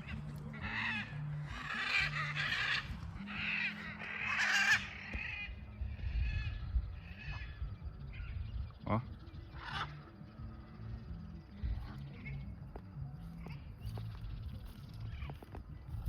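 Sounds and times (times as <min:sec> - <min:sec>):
macaws squawking: 0:00.0 - 0:10.5.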